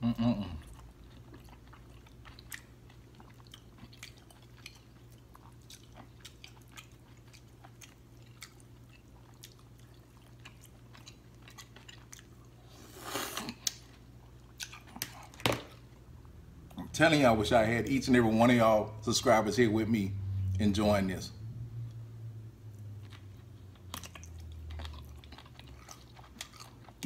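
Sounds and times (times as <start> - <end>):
wet chewing: 0.6 - 15.8, 23.0 - 27.0.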